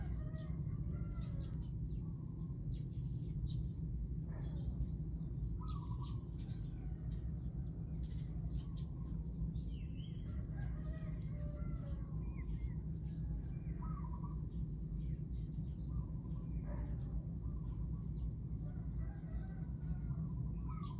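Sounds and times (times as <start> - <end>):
steady low rumble: 0.0 - 20.9
birds warbling: 4.4 - 20.9.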